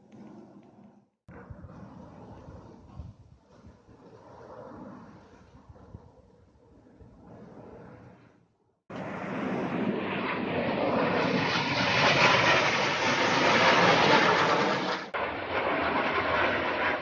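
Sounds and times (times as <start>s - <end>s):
jet aircraft roar: 8.9s - 17.0s.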